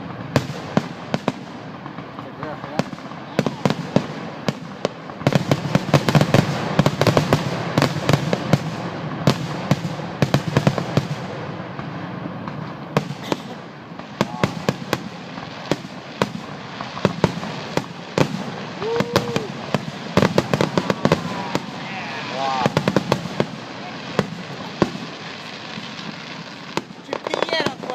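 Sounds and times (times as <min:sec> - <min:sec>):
fireworks bangs and crackles: 0:00.0 - 0:27.9.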